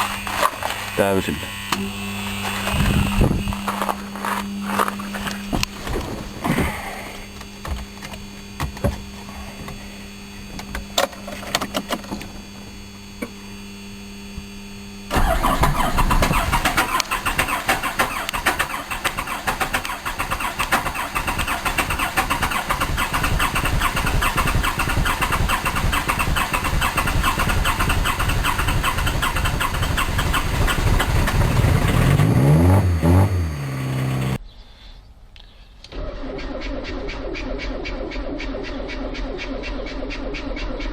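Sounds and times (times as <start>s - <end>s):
diesel engine rough clatter: 15.1s - 34.4s.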